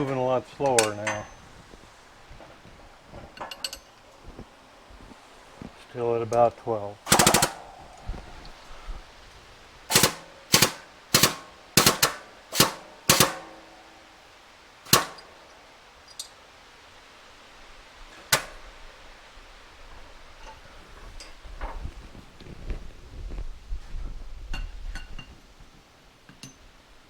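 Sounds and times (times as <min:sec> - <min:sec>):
sharp metal knocks: 0:07.1 - 0:07.7, 0:09.9 - 0:13.7, 0:14.9 - 0:15.5.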